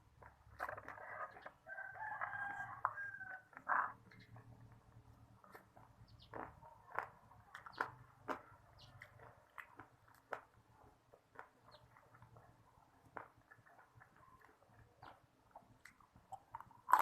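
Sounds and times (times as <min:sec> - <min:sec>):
chewing crunches: 0:00.0 - 0:17.0.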